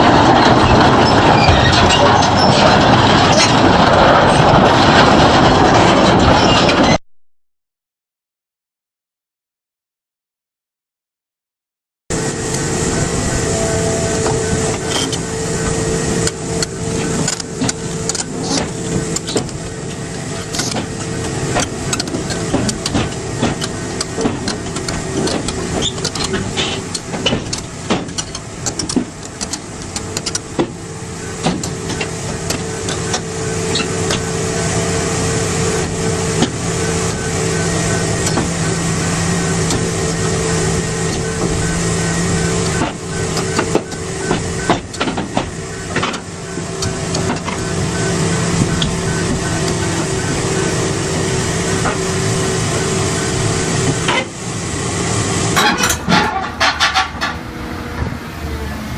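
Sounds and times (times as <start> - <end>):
heavy machine engine running: 0.0 - 7.0, 12.1 - 58.9
sharp metal clanks and knocks: 14.2 - 30.8, 55.6 - 57.4.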